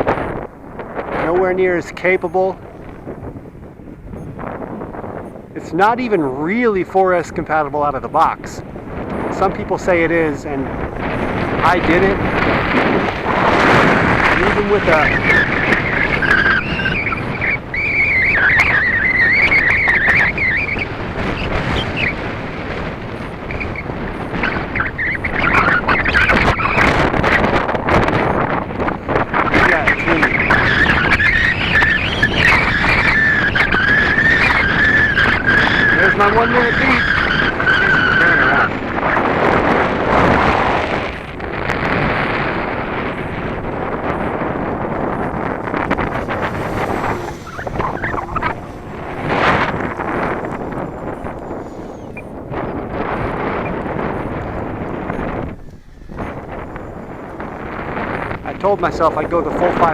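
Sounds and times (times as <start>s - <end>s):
wind rumble on microphone: 0.0s - 59.9s
model plane motor whining: 42.0s - 59.9s.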